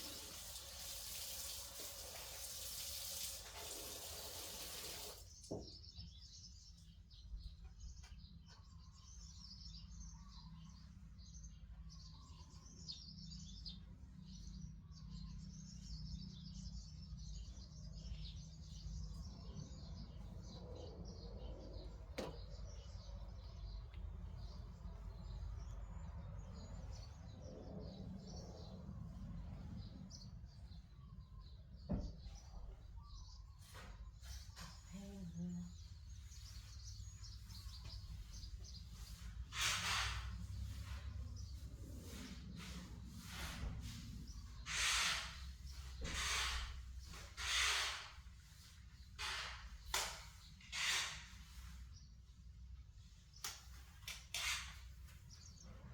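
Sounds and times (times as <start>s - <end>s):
running water: 0.0s - 5.3s.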